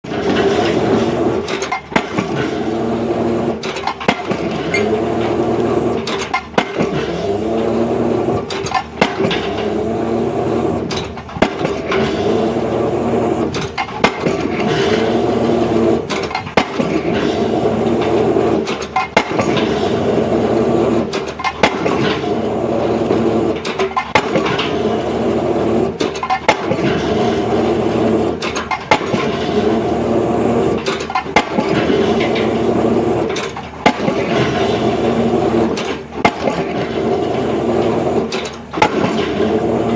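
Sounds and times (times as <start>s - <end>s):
heavy construction machinery running: 0.0s - 39.9s.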